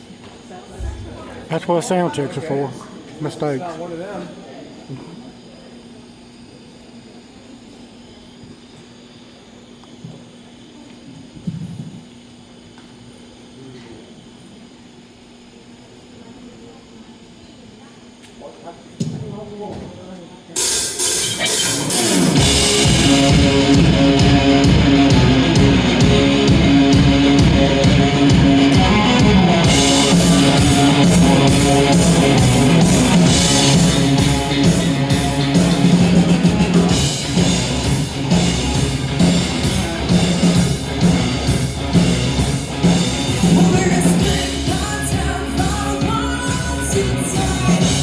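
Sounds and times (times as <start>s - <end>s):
drums beat: 20.6s - 48.0s
electric guitars: 20.6s - 48.0s
bass guitar: 21.3s - 48.0s.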